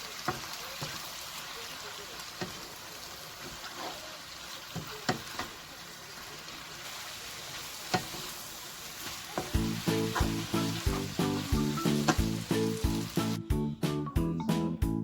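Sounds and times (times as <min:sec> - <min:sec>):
food sizzling in a pan: 0:00.0 - 0:13.4
utensil clicking against pan: 0:02.4 - 0:02.7
background music with steady beat: 0:09.6 - 0:15.0.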